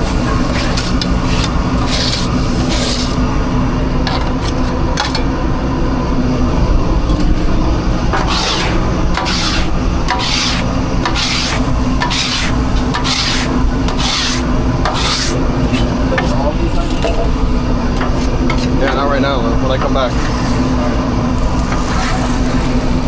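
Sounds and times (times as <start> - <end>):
low machine hum: 0.0 - 23.0
rhythmic rasping strokes: 7.1 - 23.0.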